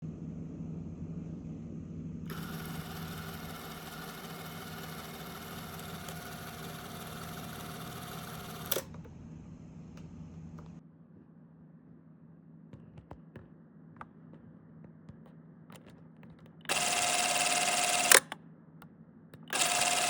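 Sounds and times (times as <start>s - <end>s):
low hum: 0.0s - 3.4s
film camera motor whirring: 2.3s - 8.9s, 16.7s - 18.2s, 19.5s - 20.0s.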